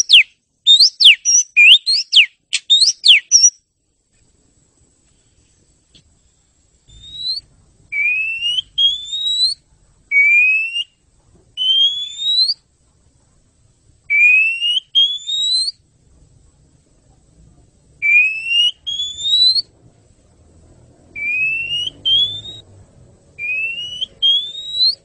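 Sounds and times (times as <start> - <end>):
bird whistling rising notes: 0.0 - 3.6, 6.9 - 11.0, 11.6 - 12.6, 14.1 - 15.8, 18.0 - 19.7, 21.1 - 22.6, 23.4 - 25.0.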